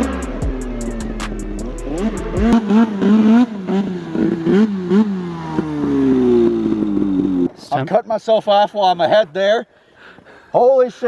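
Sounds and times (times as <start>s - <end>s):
snowmobile engine revving: 0.0s - 7.9s.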